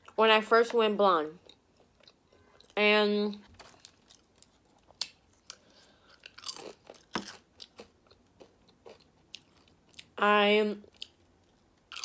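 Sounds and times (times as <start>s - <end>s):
chip crunching: 3.4s - 10.2s, 10.9s - 12.0s.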